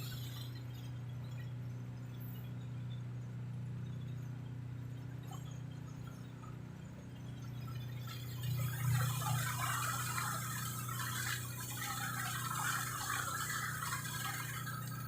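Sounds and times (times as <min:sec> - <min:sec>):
ferry engine humming: 0:00.0 - 0:15.0
water splashing: 0:07.8 - 0:15.0
rushing water: 0:08.2 - 0:15.0.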